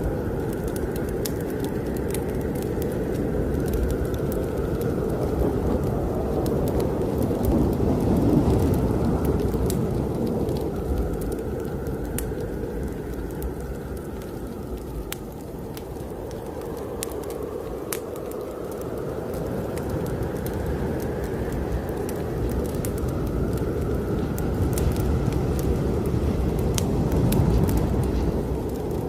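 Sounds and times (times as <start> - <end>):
fireplace fire crackling: 0.0 - 29.0
snowstorm wind rumble: 0.0 - 29.0.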